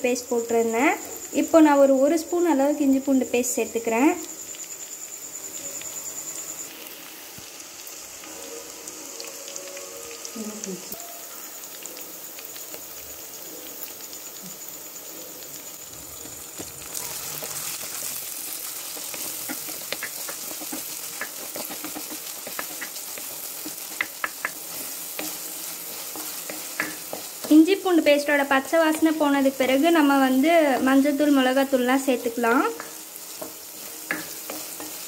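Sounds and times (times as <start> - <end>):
food sizzling in hot oil: 0.0 - 35.0
spoon clicking and scraping pot: 19.2 - 25.4.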